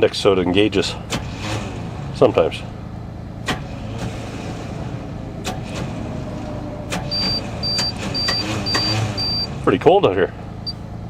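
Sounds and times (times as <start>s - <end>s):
low engine rumble: 0.0s - 11.0s
dashboard warning chime beeping: 7.1s - 9.5s.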